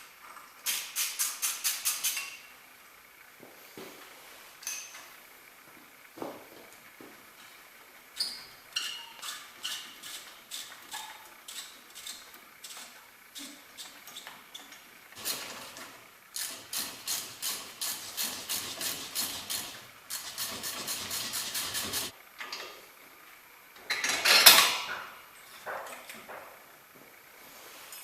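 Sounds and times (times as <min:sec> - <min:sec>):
rapid metallic clicking: 0:15.2 - 0:22.1.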